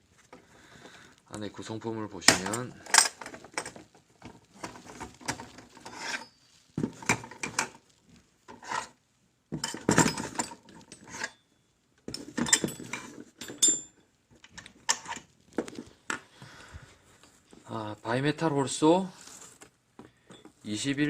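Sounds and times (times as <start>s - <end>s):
metal tools clinking and knocking: 2.2s - 3.9s, 4.6s - 7.8s, 9.6s - 11.4s, 12.1s - 15.2s, 20.2s - 20.6s.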